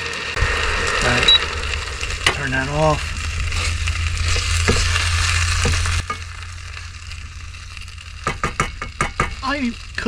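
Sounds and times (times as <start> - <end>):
stir fry sizzling in a pan: 0.0 - 10.0
low hum: 0.3 - 10.0
utensil tapping a pan: 8.2 - 9.4.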